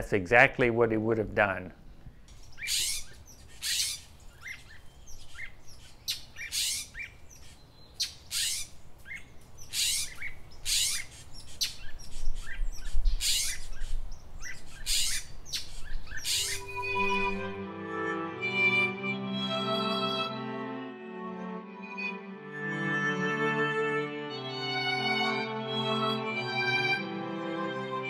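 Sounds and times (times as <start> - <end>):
bird chirping: 1.7 - 17.6.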